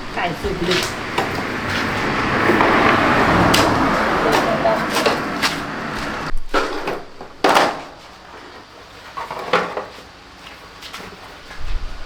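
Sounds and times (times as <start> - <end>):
scooter parts knocking and clunking: 0.0 - 8.0, 9.2 - 10.0.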